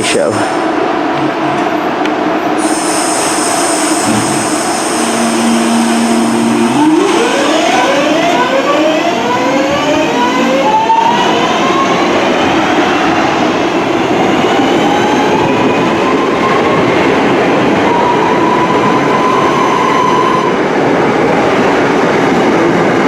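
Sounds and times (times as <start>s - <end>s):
electric train whine: 0.5s - 22.9s.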